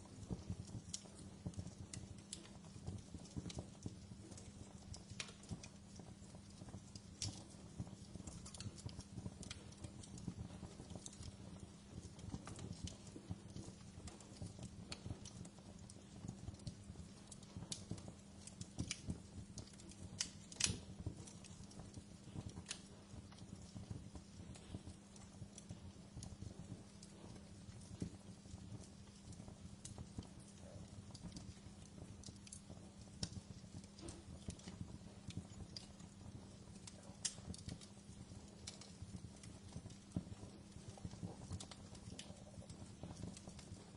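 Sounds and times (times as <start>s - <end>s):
low rumble of flames: 0.0s - 43.9s
wood fire crackling and popping: 0.0s - 43.9s.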